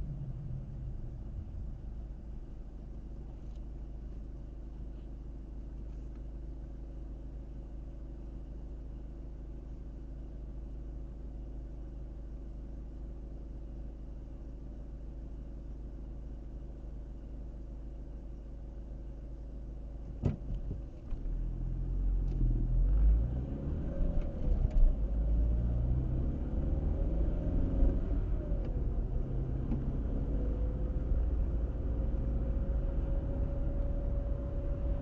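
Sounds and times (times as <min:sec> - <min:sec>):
car engine and tyres rumbling: 0:00.0 - 0:35.0.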